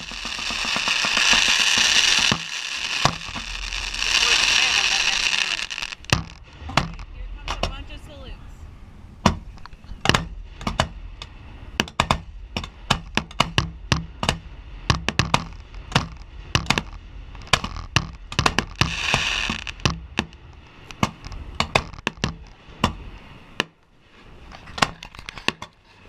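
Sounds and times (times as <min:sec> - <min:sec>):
fireworks hiss: 0:00.0 - 0:07.4, 0:14.7 - 0:21.5
fireworks bangs and cracks: 0:00.0 - 0:07.9, 0:11.8 - 0:23.1.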